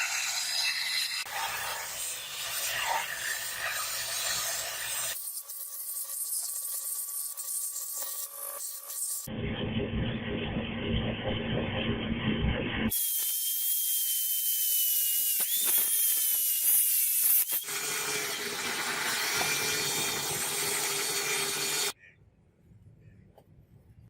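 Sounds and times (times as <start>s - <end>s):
power tools working metal: 0.0s - 9.3s, 12.9s - 22.0s
low hum: 9.3s - 12.9s
high power tool whine: 12.9s - 22.0s.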